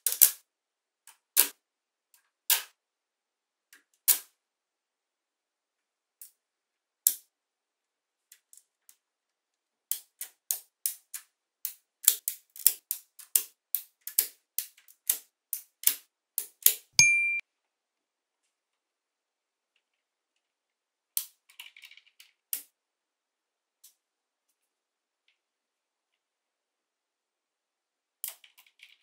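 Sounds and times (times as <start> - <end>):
short bright ring: 17.0 - 17.4.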